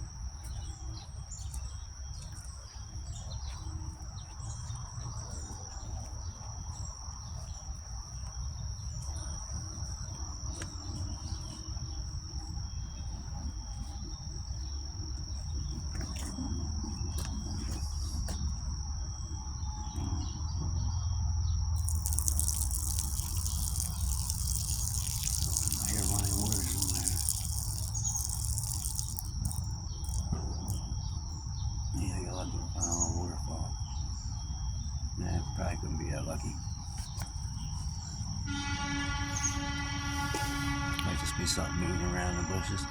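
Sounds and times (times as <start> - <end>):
insects trilling: 0.0 - 42.9
steady high hiss: 21.8 - 30.9.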